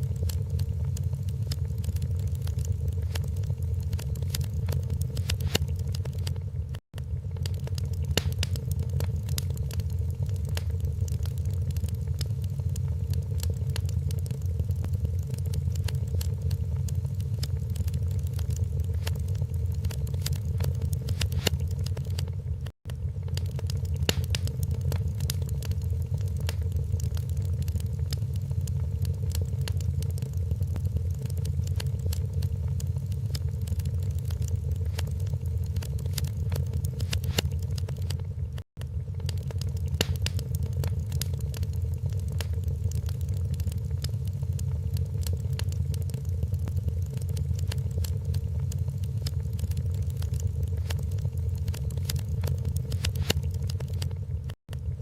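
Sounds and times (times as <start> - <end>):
fire low rumble: 0.0 - 55.0
fire popping and snapping: 0.0 - 55.0.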